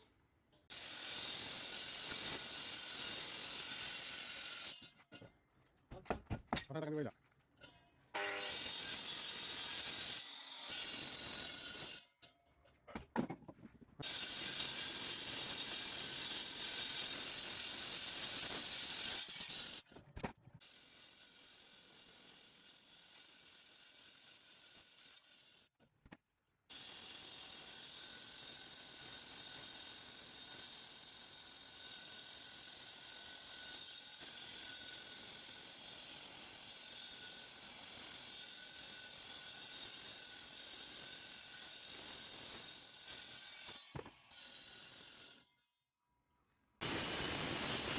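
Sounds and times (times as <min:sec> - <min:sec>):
concrete saw grinding: 0:08.2 - 0:12.2, 0:14.0 - 0:19.9.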